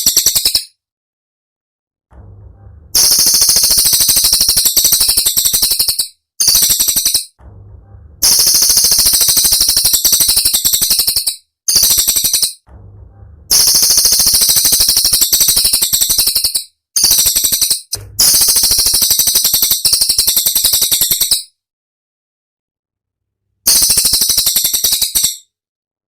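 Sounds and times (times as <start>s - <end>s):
songbird rattling shrill notes: 3.0s - 7.4s, 13.5s - 21.5s.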